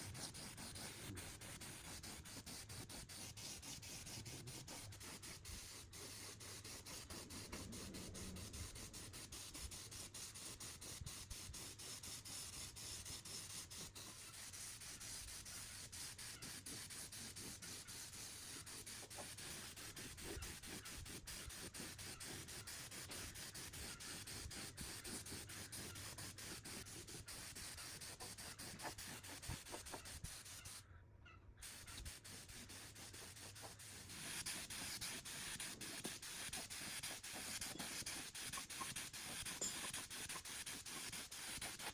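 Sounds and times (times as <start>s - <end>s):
scraping on a metal part: 31.6s - 41.9s.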